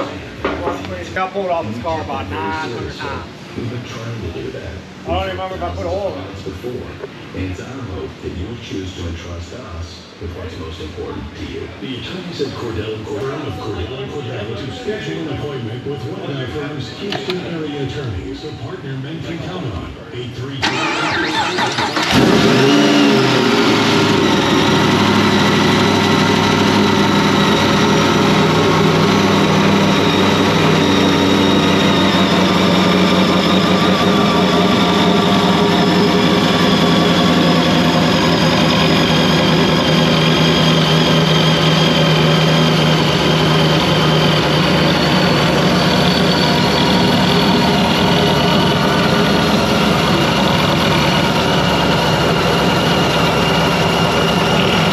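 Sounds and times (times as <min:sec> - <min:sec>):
car engine idling after starting: 0:20.6 - 0:54.9.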